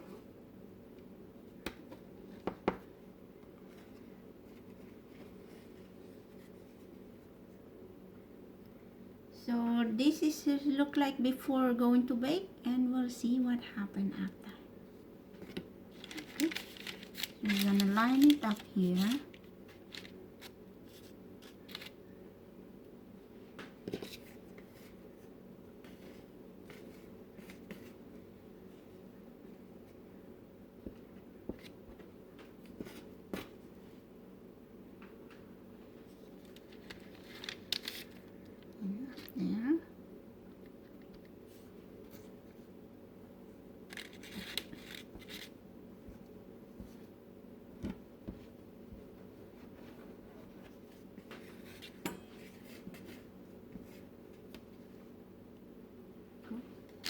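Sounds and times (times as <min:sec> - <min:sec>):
steady low hum: 0:00.0 - 0:57.0
dough rustling and tapping on tray: 0:01.6 - 0:02.9
parchment paper rustling: 0:15.3 - 0:22.0, 0:36.0 - 0:39.3, 0:43.9 - 0:47.1.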